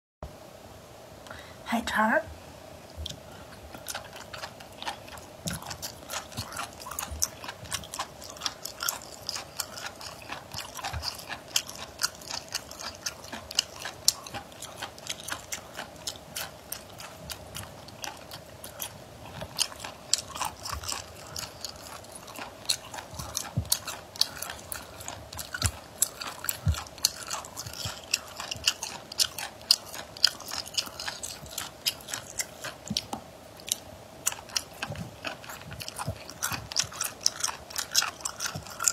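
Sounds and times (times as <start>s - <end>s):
crunchy chewing: 2.9s - 38.9s
wet mouth clicks: 19.6s - 38.9s.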